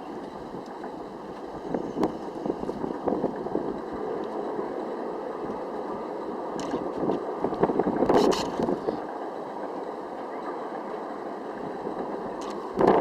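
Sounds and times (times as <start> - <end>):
aircraft cabin rumble: 0.0 - 9.1, 11.6 - 13.0.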